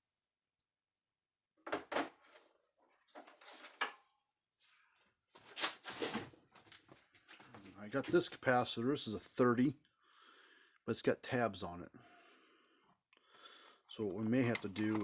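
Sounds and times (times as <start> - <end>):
parts clattering and rustling: 1.6 - 4.2, 5.4 - 8.3, 14.2 - 15.0.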